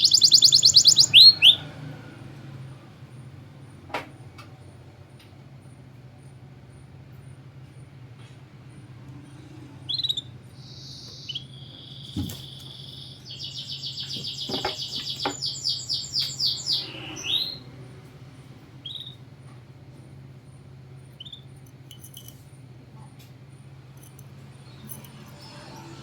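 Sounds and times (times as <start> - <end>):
canary singing: 0.0 - 1.9, 9.9 - 18.0, 18.8 - 19.2, 21.1 - 21.5.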